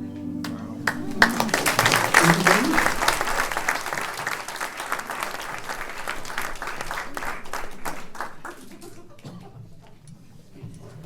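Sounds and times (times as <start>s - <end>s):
audience applauding: 0.4s - 9.3s.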